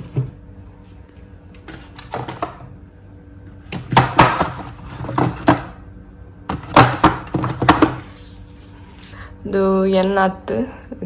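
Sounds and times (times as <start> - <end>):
faint steady hum: 0.0 - 11.0
containers knocking and rattling: 1.7 - 2.6, 3.8 - 5.8, 6.5 - 8.0.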